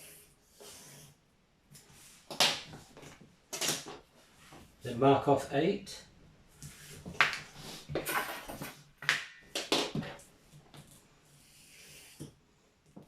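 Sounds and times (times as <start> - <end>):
board scraping and rustling: 6.6 - 8.9.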